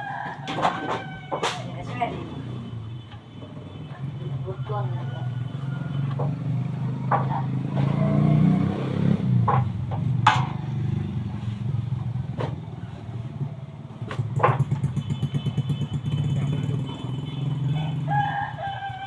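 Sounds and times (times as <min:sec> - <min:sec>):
sharp clicks and knocks: 0:07.0 - 0:08.0, 0:09.4 - 0:10.8, 0:14.1 - 0:15.1.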